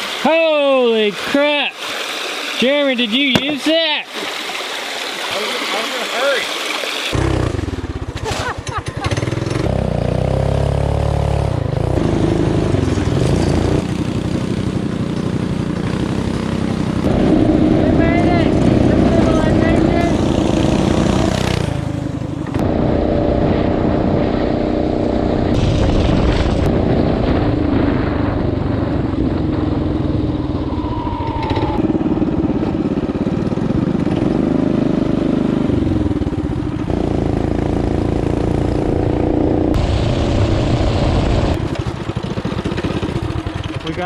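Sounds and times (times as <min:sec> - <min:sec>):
small engine revving: 0:04.3 - 0:25.7.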